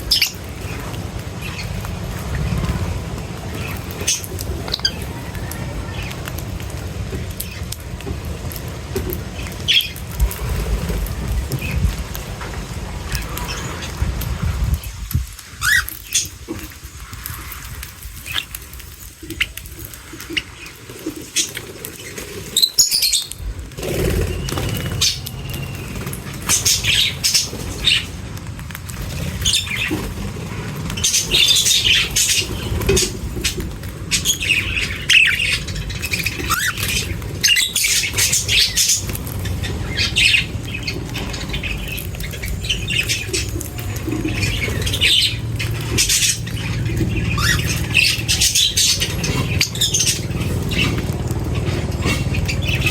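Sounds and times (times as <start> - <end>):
small birds chirping and squawking: 0.0 - 52.9
low steady rumble: 23.4 - 52.9.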